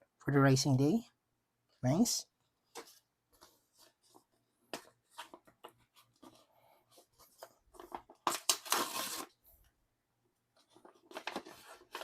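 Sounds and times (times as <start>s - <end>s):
cards tapping and rustling: 2.6s - 9.3s, 10.6s - 12.0s
plastic packaging crinkling: 7.8s - 9.4s.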